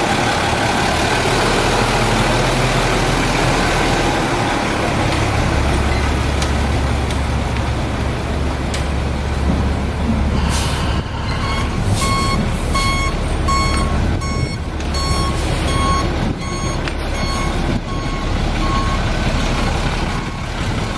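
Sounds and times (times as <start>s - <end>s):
truck engine idling: 0.0s - 20.9s
truck reversing alarm beeping: 10.4s - 20.6s.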